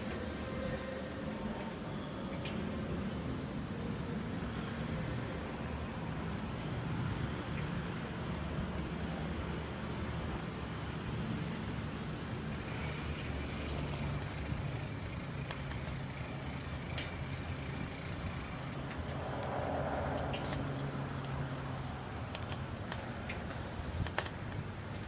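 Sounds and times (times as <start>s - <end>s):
passing cars hum and tyre noise: 0.0s - 25.0s.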